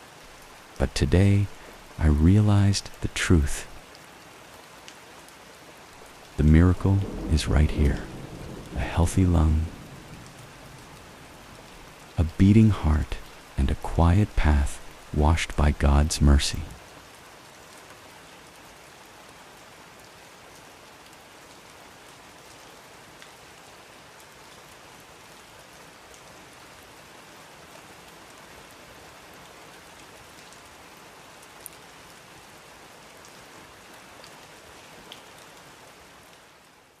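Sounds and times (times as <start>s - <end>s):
steady rain hiss: 0.0s - 37.0s
raindrop ticking: 0.3s - 16.8s.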